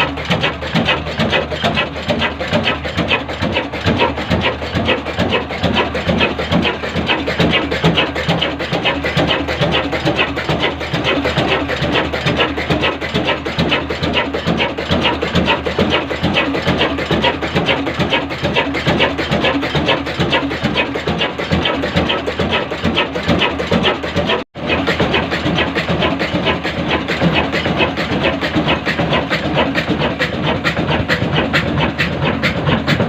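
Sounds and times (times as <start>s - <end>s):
oil engine clattering knock: 0.0s - 33.0s.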